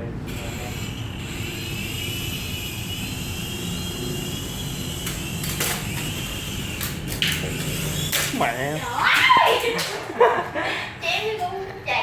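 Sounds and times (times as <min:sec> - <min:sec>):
toy airplane motor whining: 0:00.3 - 0:08.2.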